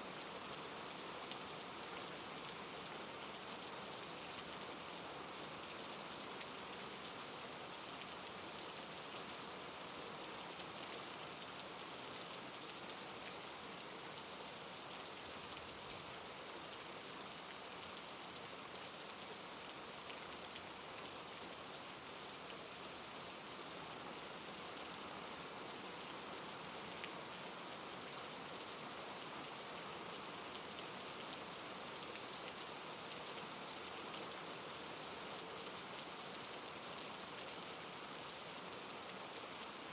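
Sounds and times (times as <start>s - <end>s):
soft rain patter: 0.0s - 39.9s.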